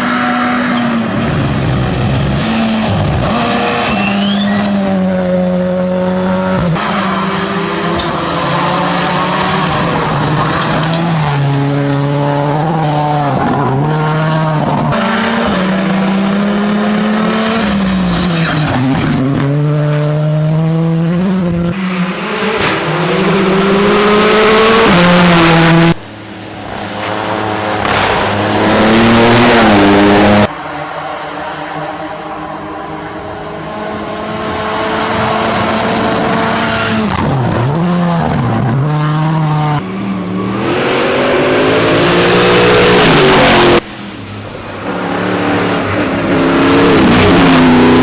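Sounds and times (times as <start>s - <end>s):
tyre skid noise: 0.0s - 5.1s, 26.9s - 30.5s
rally car engines revving: 0.0s - 48.0s.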